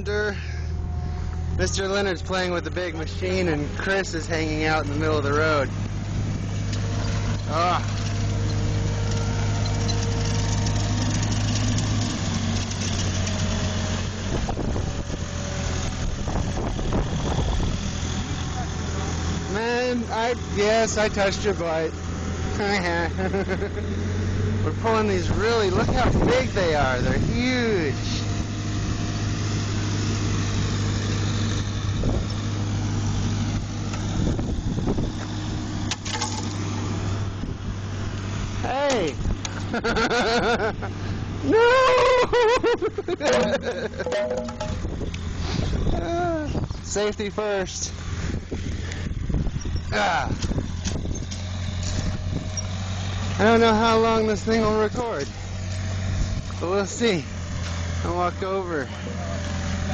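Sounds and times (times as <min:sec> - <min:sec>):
diesel engine running: 0:00.0 - 0:59.9
sharp knocks: 0:43.4 - 0:44.9.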